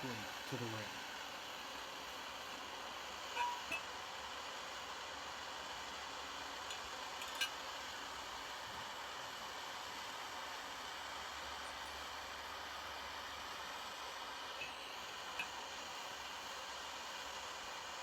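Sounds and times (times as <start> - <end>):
light metallic clinks: 6.7 - 7.6.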